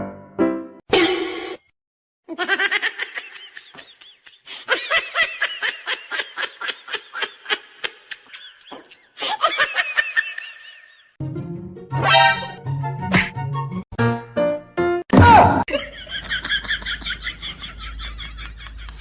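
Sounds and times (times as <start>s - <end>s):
high-pitched laughter: 2.3s - 11.1s.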